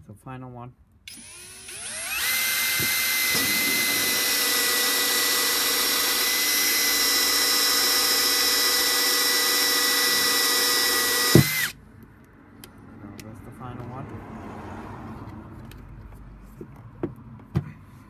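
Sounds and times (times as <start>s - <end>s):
power drill whining: 1.1s - 11.8s.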